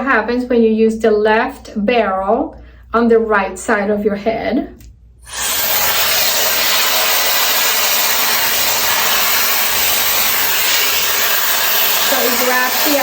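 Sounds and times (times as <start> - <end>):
hair styler blowing air: 5.2 - 13.0.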